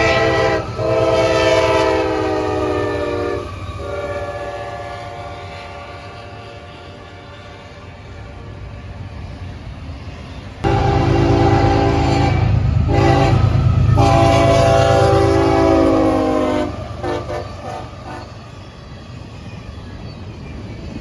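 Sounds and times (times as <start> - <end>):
locomotive air horn blasts: 0.0 - 7.2, 10.6 - 18.4
low rumble of passing train: 0.0 - 21.0.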